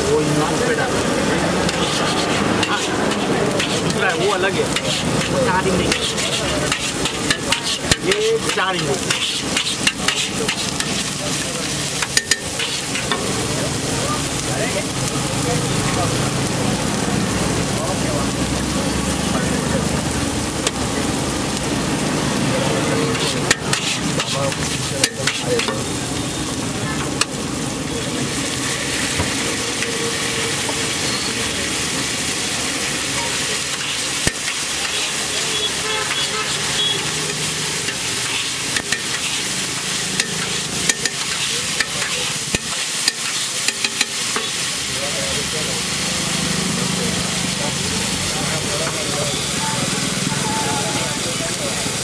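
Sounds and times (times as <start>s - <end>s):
vegetables sizzling in oil: 0.0s - 52.0s
metal spatula scraping iron griddle: 1.5s - 13.4s, 23.0s - 25.9s, 33.2s - 44.6s.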